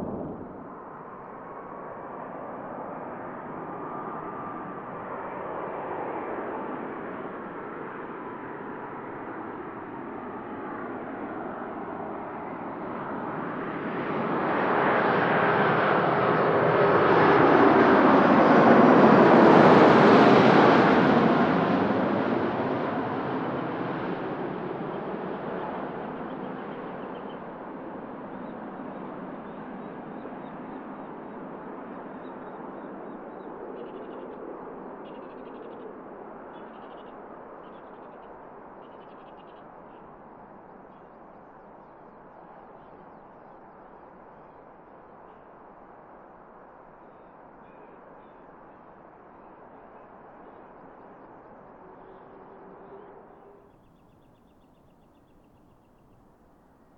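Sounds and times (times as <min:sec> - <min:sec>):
jet aircraft rushing: 0:00.0 - 0:01.1
jet airliner passing: 0:00.0 - 0:07.2.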